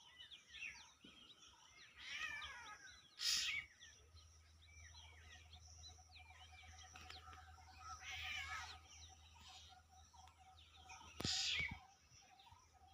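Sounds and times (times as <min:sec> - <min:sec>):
small birds chirping: 0:00.0 - 0:12.9
rapid ticking bird call: 0:02.5 - 0:03.8, 0:11.0 - 0:11.9
loud mewing call: 0:07.8 - 0:08.8.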